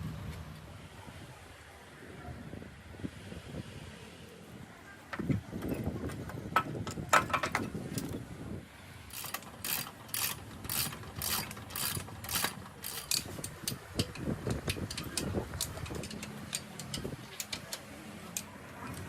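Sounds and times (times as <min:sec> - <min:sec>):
ratchet clicks: 0:09.1 - 0:19.0.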